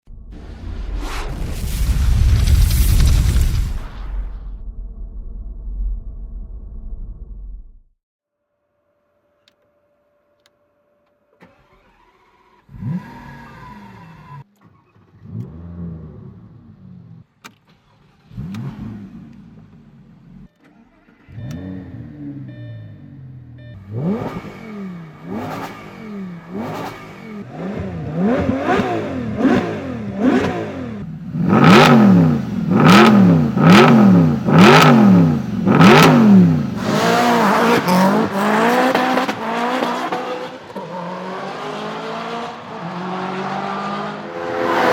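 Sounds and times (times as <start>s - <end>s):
car engine starting: 11.3s - 44.9s
engine revving: 11.4s - 14.4s, 15.1s - 17.3s, 18.0s - 19.8s, 21.2s - 44.9s.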